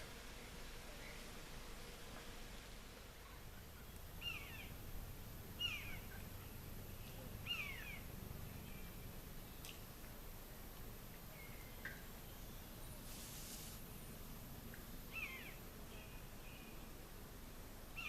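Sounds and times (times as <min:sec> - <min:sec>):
bird calling: 0:03.5 - 0:04.8, 0:05.6 - 0:09.0, 0:15.1 - 0:15.6.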